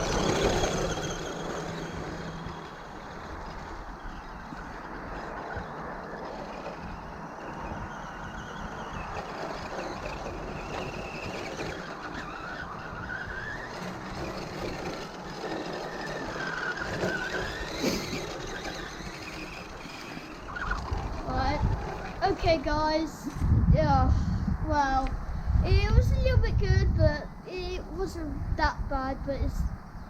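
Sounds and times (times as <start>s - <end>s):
rc truck electric motor whining: 0.0s - 23.4s
steady rushing noise: 0.0s - 29.9s.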